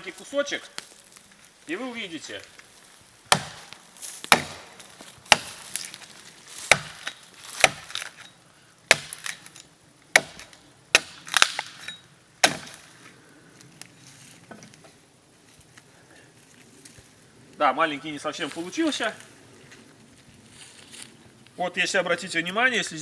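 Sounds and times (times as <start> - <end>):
blade chopping into wood: 3.3 - 6.0, 6.6 - 8.2, 8.9 - 12.9.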